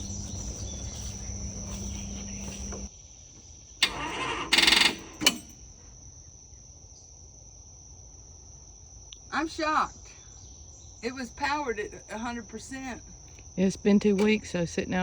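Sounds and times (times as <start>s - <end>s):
crickets trilling: 0.0s - 15.0s
steady low hum: 0.0s - 15.0s
starter motor buzzing chatter: 3.8s - 5.5s
starter click: 3.8s - 5.6s.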